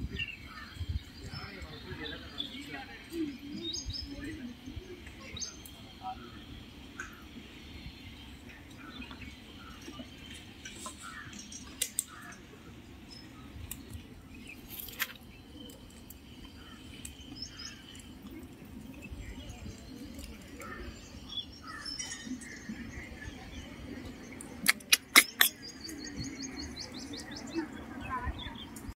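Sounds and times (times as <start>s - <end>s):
birds chirping: 0.0s - 28.9s
sharp clicks or snaps: 24.6s - 25.6s.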